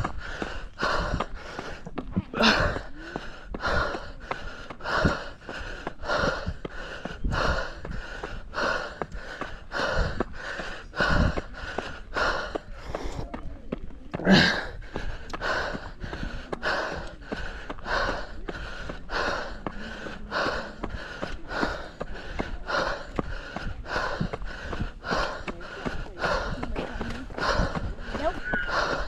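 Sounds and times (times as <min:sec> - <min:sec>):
faint footsteps: 0:00.0 - 0:29.0
runner breathing hard: 0:00.0 - 0:29.0
wind on microphone: 0:06.0 - 0:13.7.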